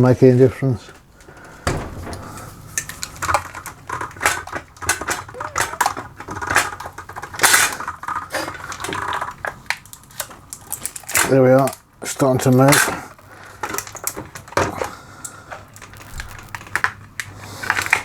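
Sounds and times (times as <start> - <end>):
pouch clicking and crackling in rollers: 4.8 - 11.7, 15.2 - 18.0.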